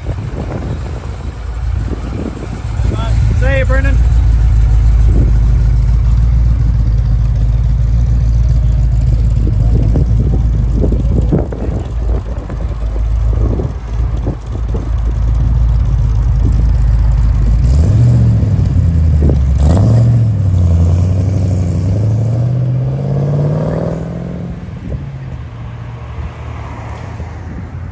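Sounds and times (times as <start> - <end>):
car engine revving and accelerating: 8.3 - 25.0.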